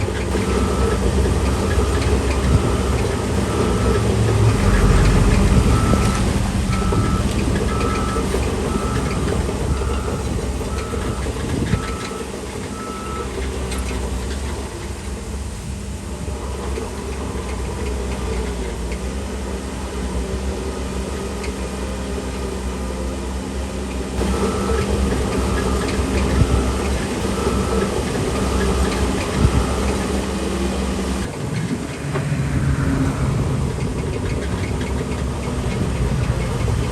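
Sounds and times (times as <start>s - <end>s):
heavy diesel machine running: 0.0s - 36.9s
reversing alarm beeping: 0.2s - 13.9s, 24.2s - 31.3s.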